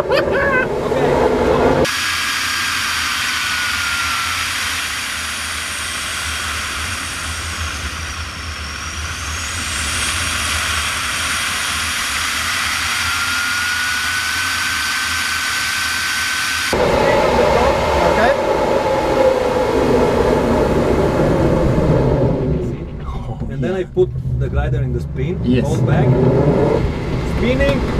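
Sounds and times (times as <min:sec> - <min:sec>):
airflow rushing: 0:00.0 - 0:27.9
thin wind whistle: 0:01.8 - 0:22.6.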